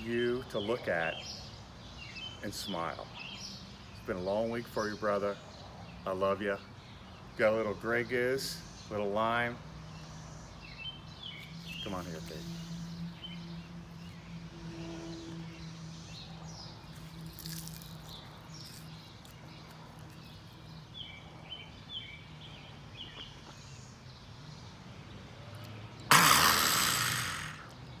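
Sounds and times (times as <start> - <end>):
loud rushing burst of noise: 26.1 - 27.7.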